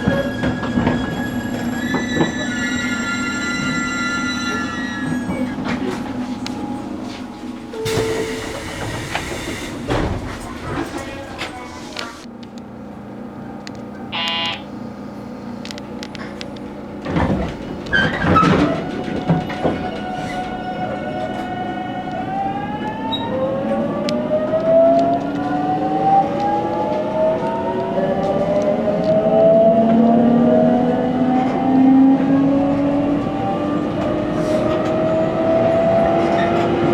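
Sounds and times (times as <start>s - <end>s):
wheels clacking over rail joints: 16.2s - 21.6s.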